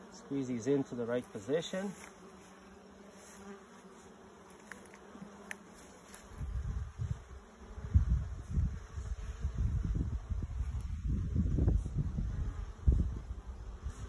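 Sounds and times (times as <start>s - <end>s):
honeybees humming: 0.0s - 14.0s
low rumbling on microphone: 6.4s - 14.0s.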